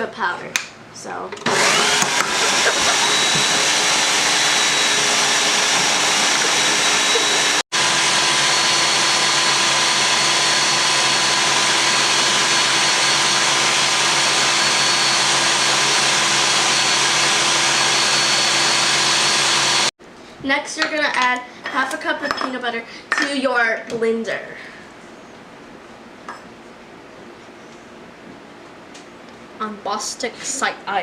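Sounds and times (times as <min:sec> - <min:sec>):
food processor grinding oats: 0:01.5 - 0:19.9.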